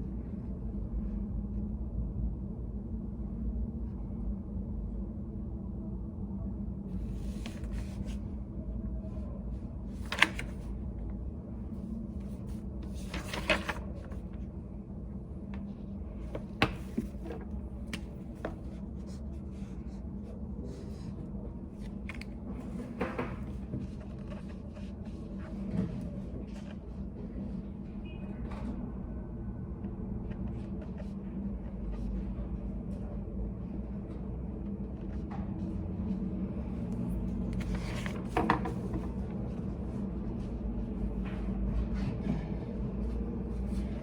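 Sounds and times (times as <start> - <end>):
steady low hum: 0.0 - 44.0
clicks knocks and rustles at desks: 9.9 - 10.7, 12.5 - 14.4, 16.2 - 18.8, 21.8 - 24.9, 37.4 - 39.6.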